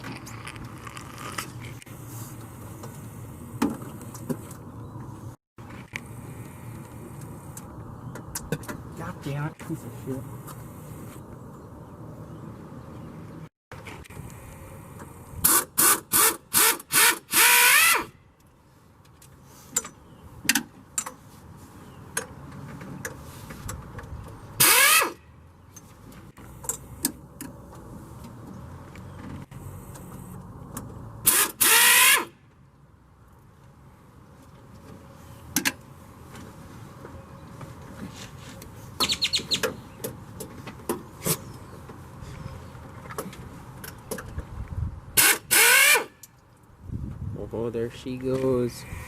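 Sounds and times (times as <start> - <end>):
handheld power tool motor: 15.5 - 18.1, 24.6 - 25.2, 31.3 - 32.3, 45.2 - 46.1.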